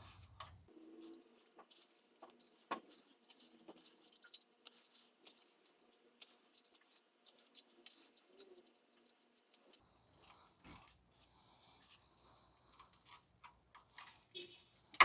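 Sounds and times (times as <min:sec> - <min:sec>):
faint metal clicks and taps: 0:00.3 - 0:11.0.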